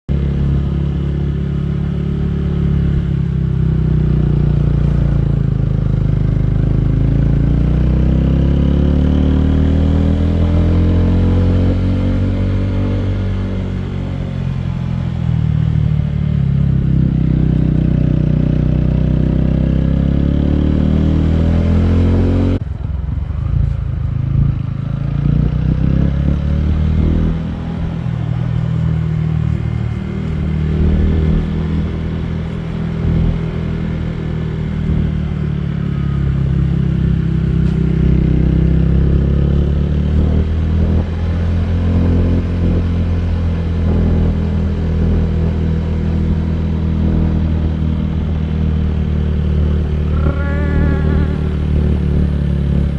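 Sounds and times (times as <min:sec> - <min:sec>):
motorcycle engine running: 0:00.1 - 0:52.9.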